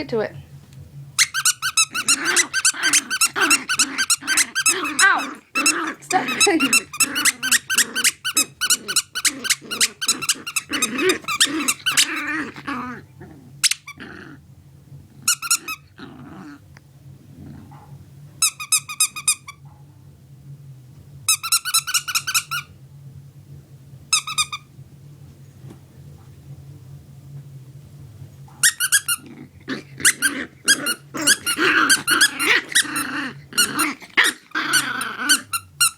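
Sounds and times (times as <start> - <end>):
squeaky toy squeaking: 1.2 - 12.3, 21.3 - 22.7, 24.2 - 24.6, 30.0 - 33.0
puppy growling: 1.2 - 19.8, 28.4 - 35.9.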